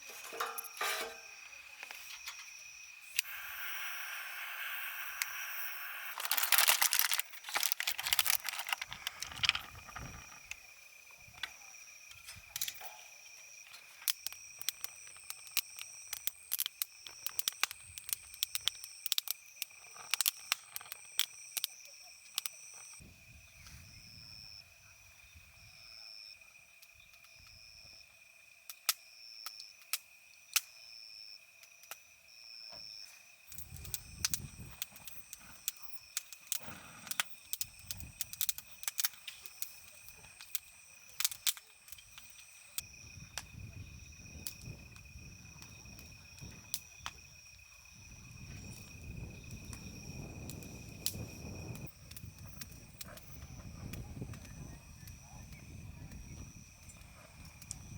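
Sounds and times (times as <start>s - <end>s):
insect call pulsing: 0.0s - 57.9s
insects chirping: 0.0s - 57.9s
sharp clicks and rustling handling: 6.2s - 10.6s.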